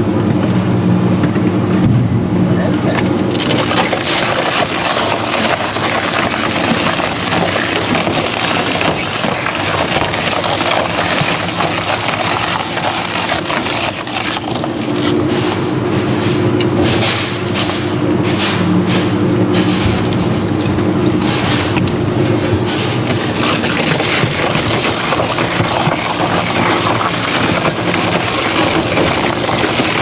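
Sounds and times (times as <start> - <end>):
crushing machine engine drone: 0.0 - 30.0
material cracking and splintering: 2.9 - 15.7, 20.1 - 30.0.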